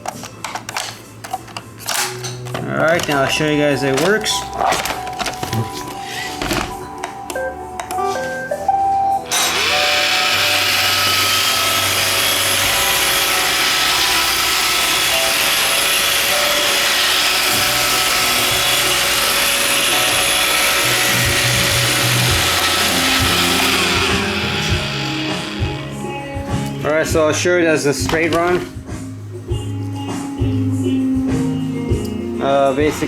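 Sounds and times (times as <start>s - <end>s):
robot vacuum motor whirring: 9.3s - 25.9s.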